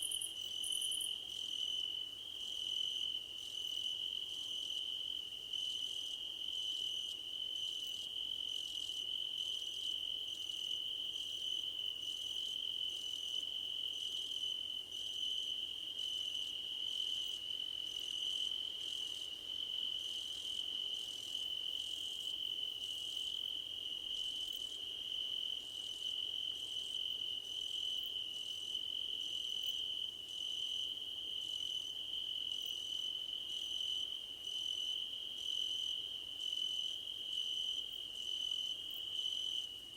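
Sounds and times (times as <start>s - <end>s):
crickets trilling: 0.0s - 1.2s
higher pulsing cricket chirp: 0.0s - 2.1s.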